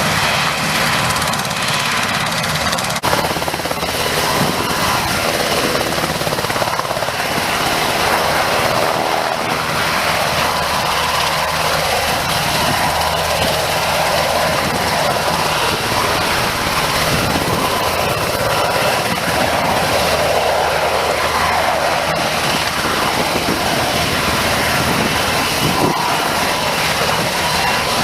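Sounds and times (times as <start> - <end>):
helicopter engines and rotors: 0.0 - 28.0.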